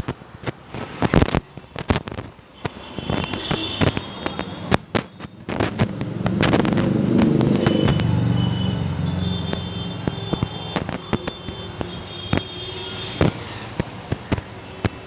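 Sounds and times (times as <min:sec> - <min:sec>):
firecrackers popping: 0:00.0 - 0:15.0
vehicle passing by: 0:05.6 - 0:10.0.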